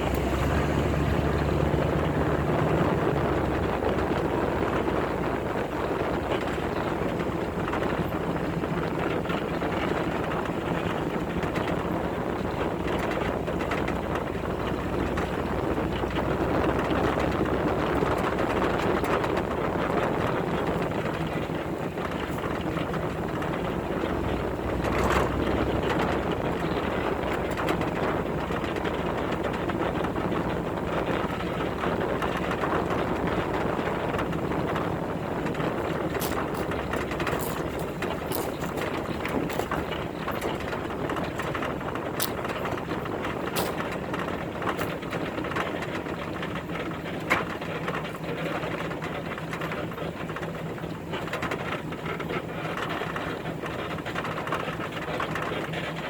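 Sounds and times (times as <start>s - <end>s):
pickup truck engine: 0.0s - 56.0s
road and wind noise: 0.0s - 56.0s
knocks and rattles: 5.8s - 50.5s.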